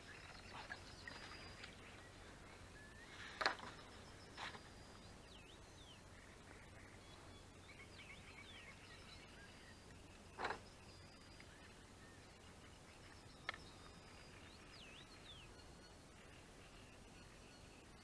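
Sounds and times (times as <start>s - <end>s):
birds whistling faintly: 0.0s - 18.0s.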